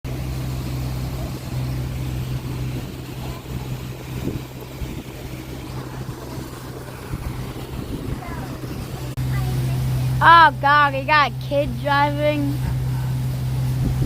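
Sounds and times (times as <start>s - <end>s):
motorboat engine humming: 0.0s - 14.0s
water noise: 0.0s - 14.0s
rushing wind: 1.6s - 9.2s, 12.5s - 14.0s.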